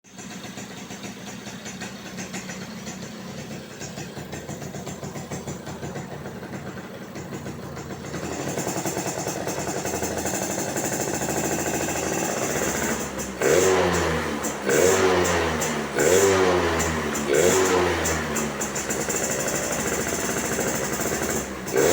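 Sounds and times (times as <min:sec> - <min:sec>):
two-stroke engine revving: 0:00.1 - 0:21.9.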